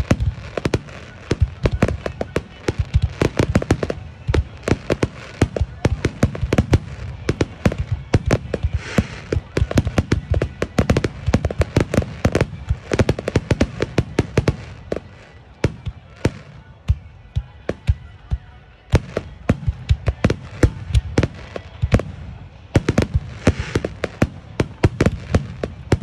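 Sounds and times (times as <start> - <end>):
crackling hiss: 0.0 - 15.6
fireworks bangs: 0.0 - 18.2, 18.9 - 26.0.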